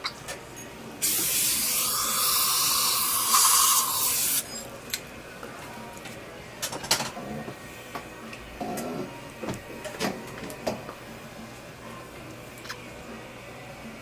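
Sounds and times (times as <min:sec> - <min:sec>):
air-water syringe hissing: 0:01.0 - 0:04.5.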